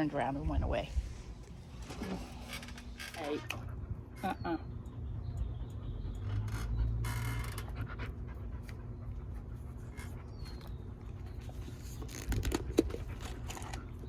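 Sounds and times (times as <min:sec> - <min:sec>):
dog panting: 0:07.6 - 0:11.0.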